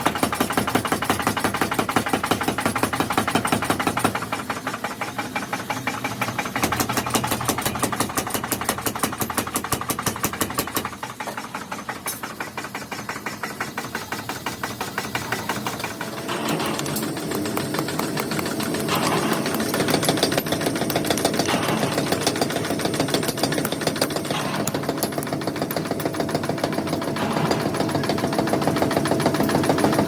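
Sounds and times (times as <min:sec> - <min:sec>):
power hammer forging metal: 0:06.2 - 0:30.0.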